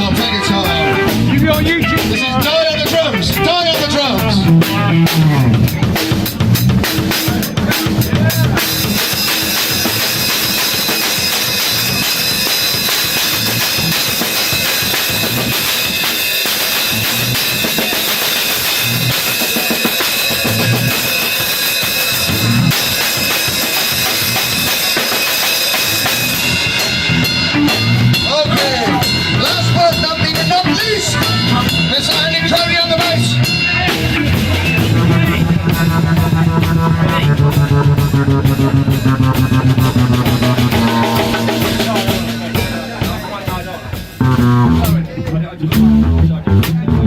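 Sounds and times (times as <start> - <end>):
drum and cymbal hits: 0.0 - 47.0
bass drum hits: 34.3 - 45.0.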